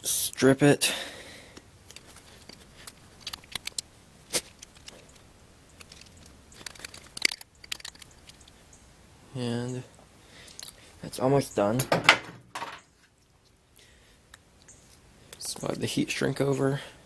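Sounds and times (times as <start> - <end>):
clicks and snaps: 1.6 - 8.6, 10.5 - 10.8
tool stripping cable insulation: 1.9 - 8.5
tearing and crunching: 1.9 - 8.6.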